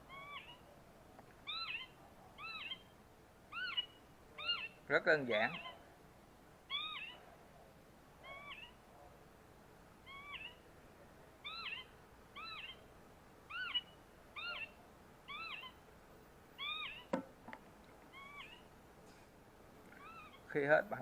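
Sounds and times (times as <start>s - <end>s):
recorded bird call from speaker: 0.0s - 0.8s, 1.4s - 5.9s, 6.7s - 9.1s, 10.0s - 10.7s, 11.4s - 12.9s, 13.5s - 15.8s, 16.6s - 17.2s, 18.1s - 18.7s, 19.9s - 21.0s.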